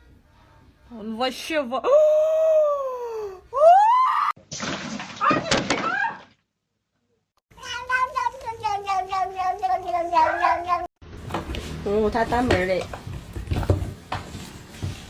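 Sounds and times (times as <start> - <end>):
cat meowing: 10.1 - 10.9
cat yowling: 10.1 - 10.9.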